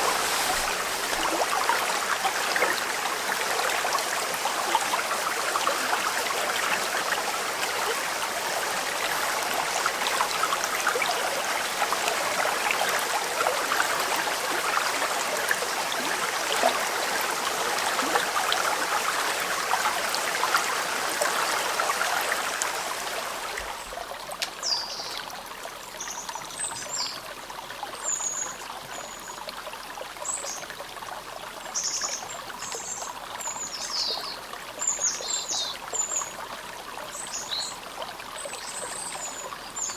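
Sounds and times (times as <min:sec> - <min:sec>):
river babbling over stones: 0:00.0 - 0:28.8.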